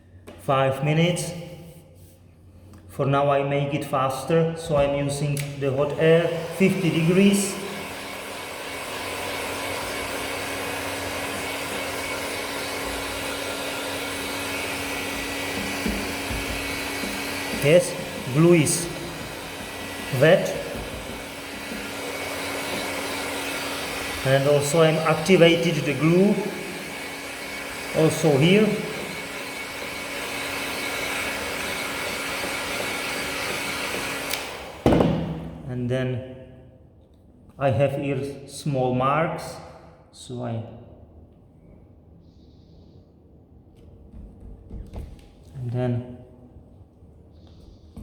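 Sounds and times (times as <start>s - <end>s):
hot-air blower running: 4.1s - 35.7s
click: 34.3s - 34.5s.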